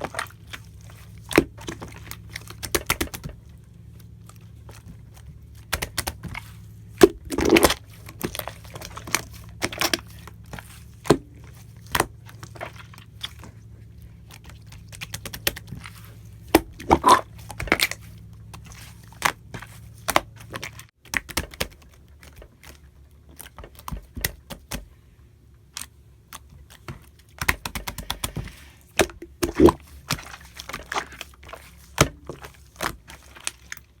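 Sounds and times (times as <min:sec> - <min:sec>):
slime squeezed clicking and popping: 0:07.0 - 0:07.8, 0:16.5 - 0:18.0.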